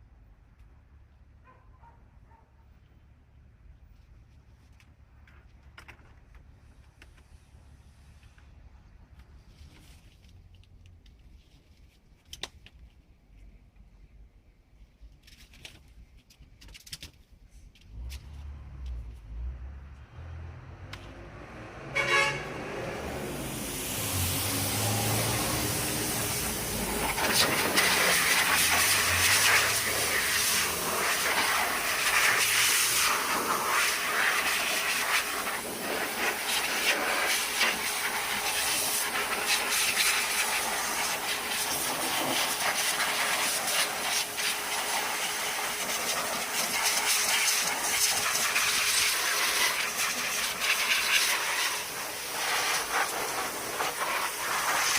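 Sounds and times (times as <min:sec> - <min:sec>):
pressurized cleaning jet hissing: 0:23.0 - 0:54.9.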